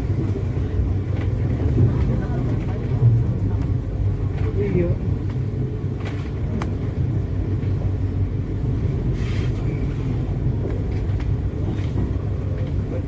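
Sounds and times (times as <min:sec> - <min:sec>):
train carriage rumbling: 0:00.0 - 0:13.0
faint clicks: 0:06.0 - 0:06.8.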